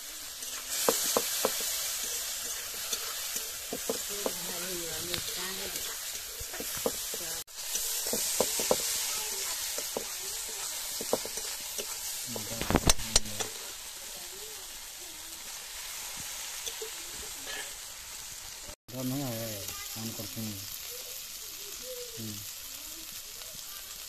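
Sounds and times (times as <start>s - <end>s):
metal spatula scraping pan: 0.0s - 12.2s, 16.5s - 17.9s
spice paste sizzling in a pan: 0.0s - 24.0s
spatula knocking on pan: 0.7s - 1.7s, 3.7s - 4.5s, 6.5s - 7.3s, 8.0s - 9.0s, 9.8s - 10.2s, 11.0s - 11.4s.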